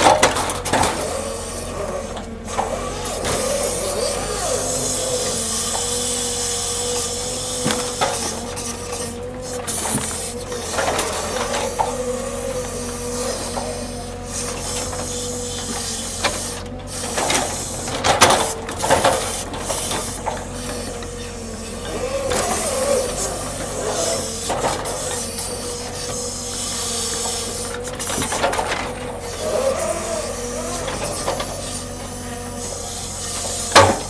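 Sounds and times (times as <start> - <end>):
heavy machinery whine: 0.0 - 34.0
logs knocking and scraping: 4.8 - 12.1.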